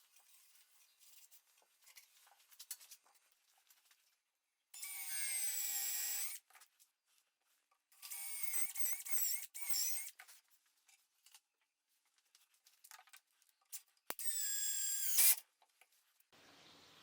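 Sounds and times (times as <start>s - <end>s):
power drill whining: 4.8s - 6.4s, 14.2s - 15.4s.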